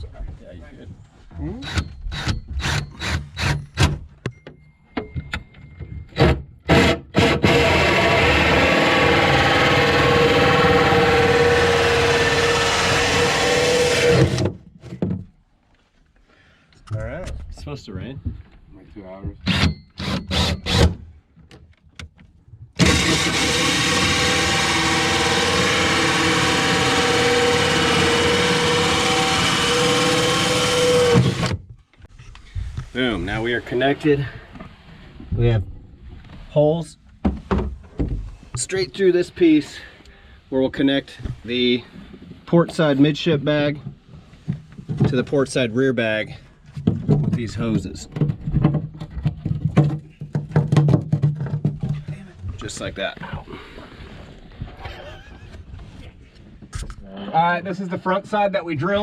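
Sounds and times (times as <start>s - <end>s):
power drill whining: 1.6s - 3.6s, 6.7s - 14.5s, 19.5s - 20.8s, 22.8s - 31.6s.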